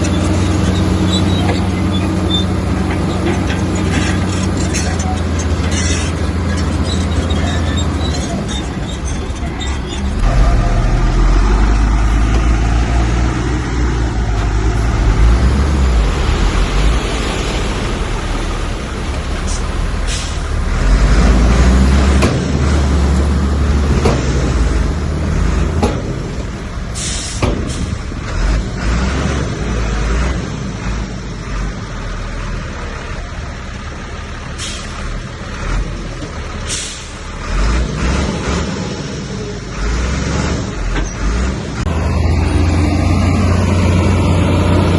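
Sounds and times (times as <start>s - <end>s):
heavy diesel machinery rumbling: 0.0s - 44.9s
knocks and clanks: 25.7s - 26.3s
short air hisses: 27.0s - 27.9s.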